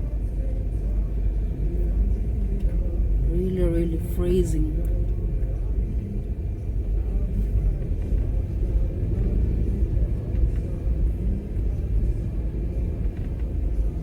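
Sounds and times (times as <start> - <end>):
car interior rumble: 0.0 - 14.0.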